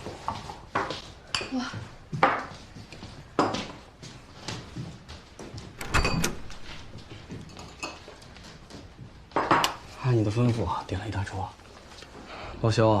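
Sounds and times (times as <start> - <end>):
door clack and heavy thud: 5.7 - 7.0.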